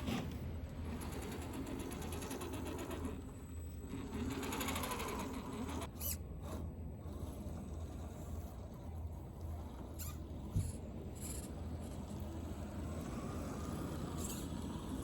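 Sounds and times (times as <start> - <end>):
toy car motor whirring: 0.0 - 15.0.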